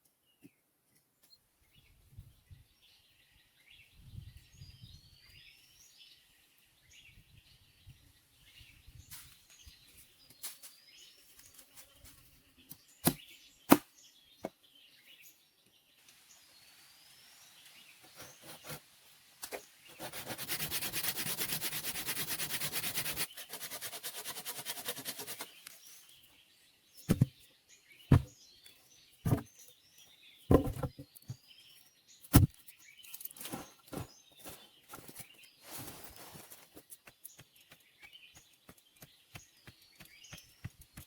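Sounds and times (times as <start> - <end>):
rasping on wood: 20.0 - 25.5
birds chirping: 22.8 - 41.0
loud knocks on wood: 27.1 - 27.3, 28.1 - 28.3, 30.5 - 31.0.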